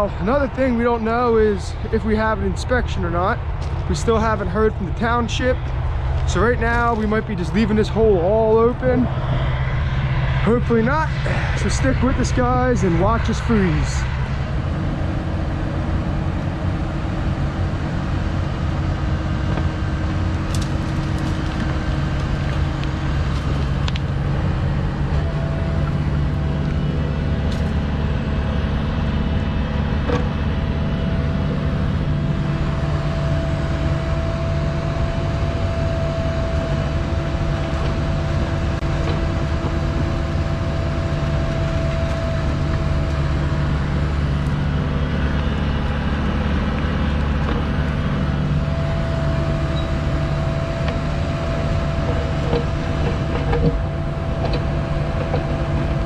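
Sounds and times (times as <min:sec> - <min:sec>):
diesel engine running: 0:00.0 - 0:56.0
high-pitched whine: 0:06.2 - 0:18.8.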